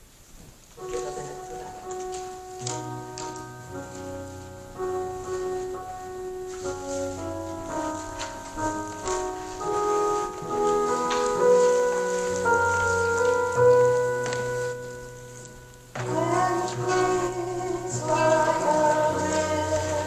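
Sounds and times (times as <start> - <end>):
keyboard playing slow chords: 0.8 - 20.0
voices singing: 16.0 - 20.0.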